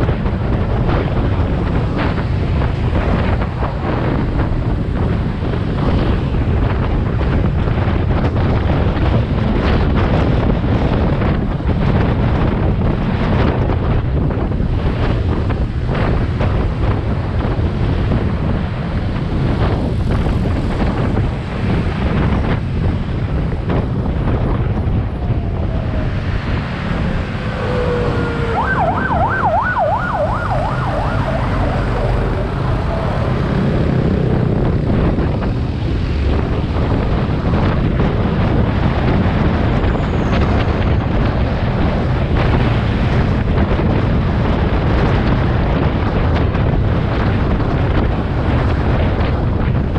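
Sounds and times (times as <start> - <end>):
motorcycle engine and road rumble: 0.0 - 49.9
wind noise on microphone: 0.0 - 49.9
warbling siren: 24.5 - 34.3.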